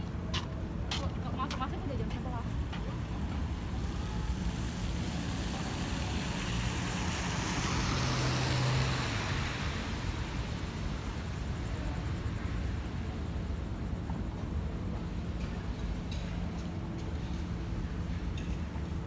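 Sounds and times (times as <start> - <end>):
low engine hum: 0.0 - 15.3
steady traffic noise: 0.0 - 19.0
tyre hiss on wet road: 3.8 - 11.6.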